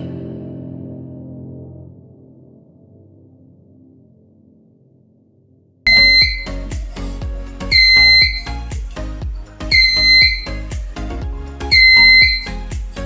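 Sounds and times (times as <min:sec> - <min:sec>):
fire alarm beeping: 0:05.9 - 0:06.5, 0:07.7 - 0:08.5, 0:09.7 - 0:10.6, 0:11.7 - 0:12.6
background music with drum beat: 0:05.9 - 0:13.0.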